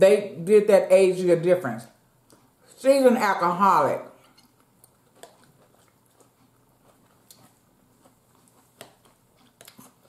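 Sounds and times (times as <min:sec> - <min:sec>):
person chewing food: 0:02.2 - 0:02.8, 0:04.2 - 0:10.0.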